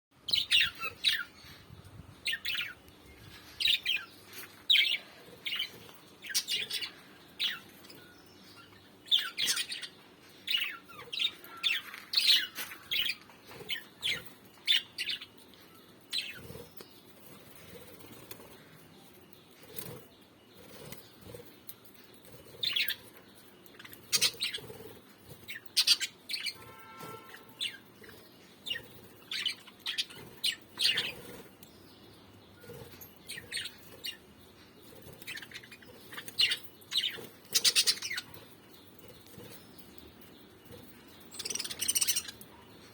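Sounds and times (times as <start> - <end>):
parrots chirping: 35.2 - 38.3, 41.4 - 42.5.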